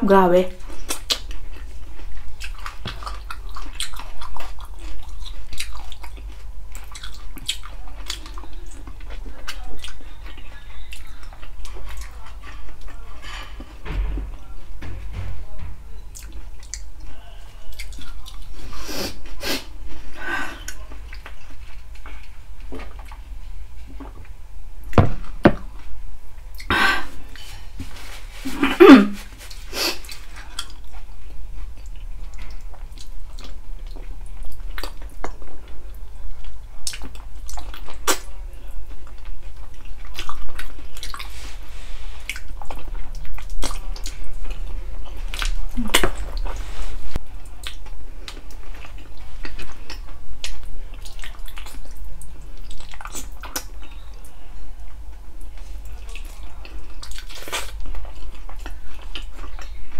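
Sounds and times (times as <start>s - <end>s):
chewing and mouth clicks: 0.6s - 13.1s, 17.7s - 18.5s, 29.5s - 38.3s, 39.0s - 41.4s, 42.2s - 46.5s, 47.4s - 59.9s.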